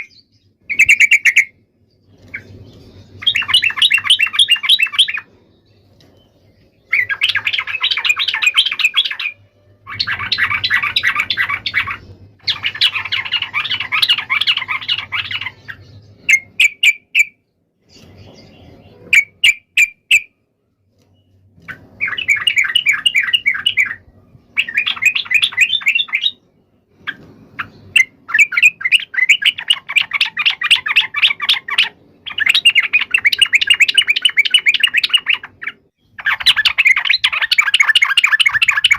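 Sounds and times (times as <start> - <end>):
bird harsh rapid chatter: 3.2 - 5.2, 6.9 - 17.3, 27.0 - 38.9.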